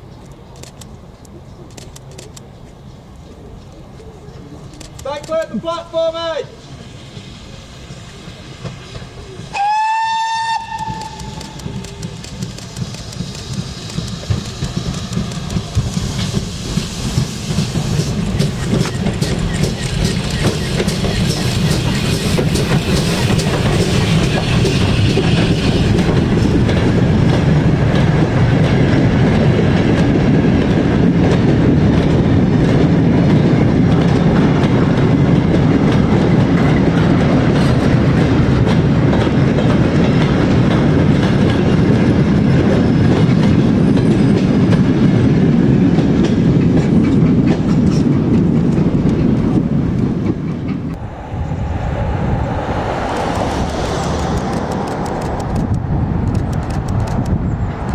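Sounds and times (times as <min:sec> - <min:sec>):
train wheels rumbling on rail: 0:00.0 - 0:57.9
train wheels clicking: 0:00.2 - 0:02.8, 0:04.7 - 0:57.9
hiss: 0:06.5 - 0:26.6.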